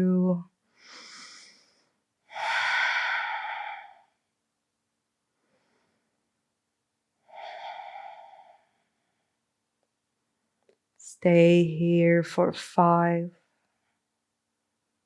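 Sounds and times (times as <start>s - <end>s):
person exhaling breathily: 0.8s - 4.2s, 7.2s - 9.1s.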